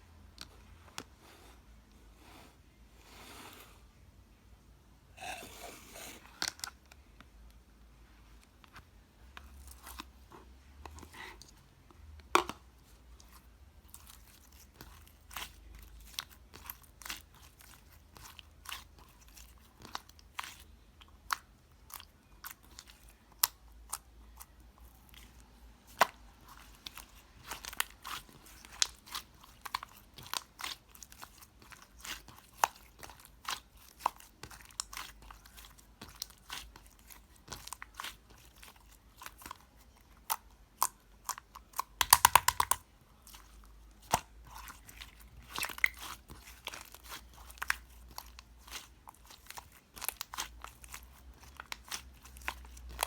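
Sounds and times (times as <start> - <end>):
slime clicking and popping: 40.2 - 42.8.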